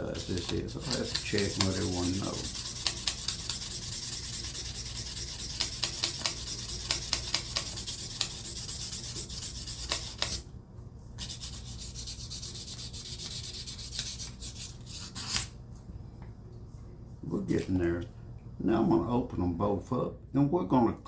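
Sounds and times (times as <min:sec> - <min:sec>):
sandpaper rubbing on steel blade: 0:00.0 - 0:10.4, 0:11.2 - 0:15.5.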